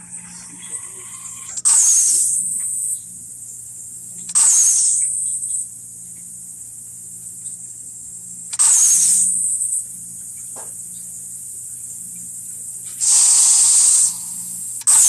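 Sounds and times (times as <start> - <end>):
loud hissing bursts: 12.9 - 15.0
low steady hum: 13.6 - 15.0.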